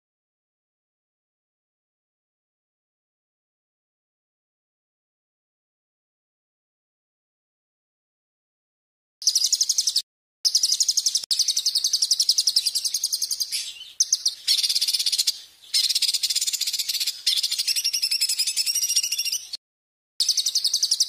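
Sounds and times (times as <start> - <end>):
songbird trilling: 9.2 - 19.6, 20.2 - 21.0.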